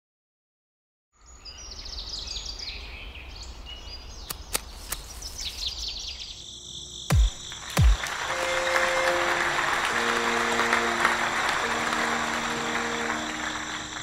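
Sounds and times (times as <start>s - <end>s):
sharp clicks: 4.2s - 5.2s
birds chirping trills: 7.3s - 14.0s.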